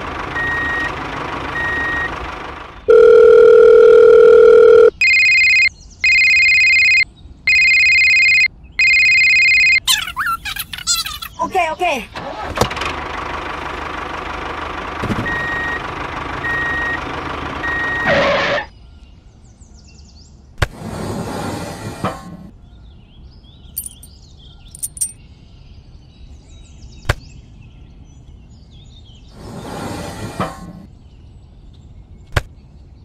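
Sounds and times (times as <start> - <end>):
vehicle engine running: 0.0 - 4.8, 12.3 - 18.2
reversing beeps: 0.4 - 0.9, 1.6 - 2.1, 2.9 - 9.8, 15.3 - 15.8, 17.6 - 18.2.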